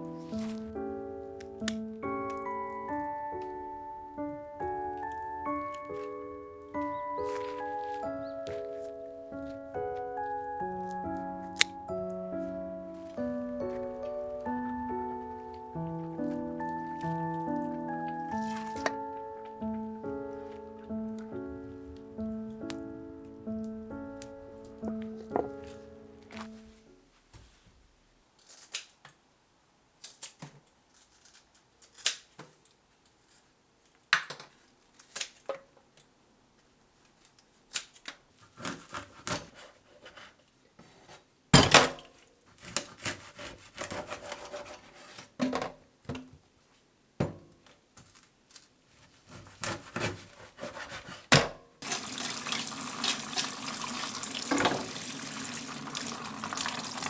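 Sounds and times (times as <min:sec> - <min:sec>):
kitchen clinks and knocks: 0:41.6 - 0:42.1
water running from a tap: 0:51.8 - 0:57.0.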